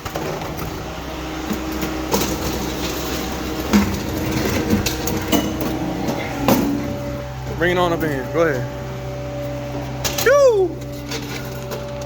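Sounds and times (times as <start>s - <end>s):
heavy equipment engine running: 0.0s - 12.0s
sharp knocks and clanks: 1.4s - 7.0s.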